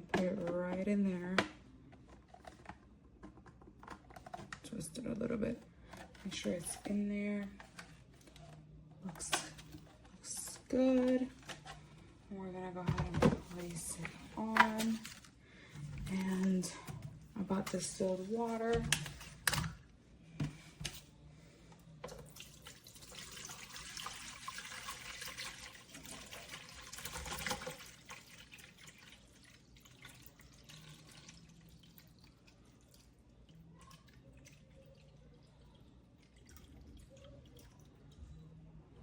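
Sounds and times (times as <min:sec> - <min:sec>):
water pouring into tank: 0:22.3 - 0:33.2
water trickling and dripping: 0:22.4 - 0:38.2.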